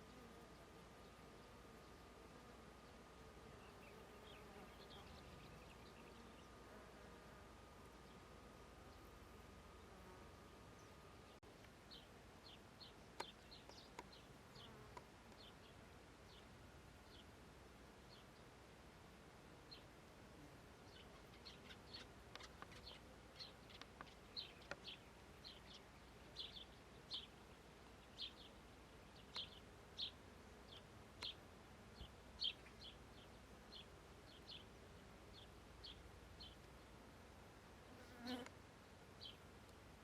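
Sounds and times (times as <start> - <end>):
background hiss: 0.0 - 40.0
small bird chirping: 20.9 - 27.3, 28.0 - 31.4.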